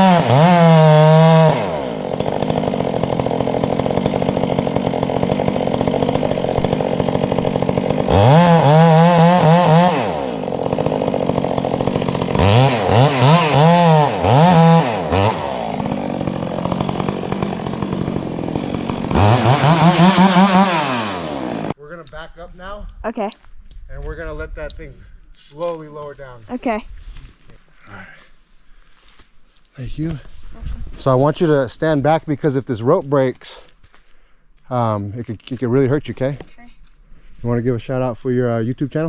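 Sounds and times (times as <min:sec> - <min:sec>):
chainsaw idling and revving: 0:00.0 - 0:21.8.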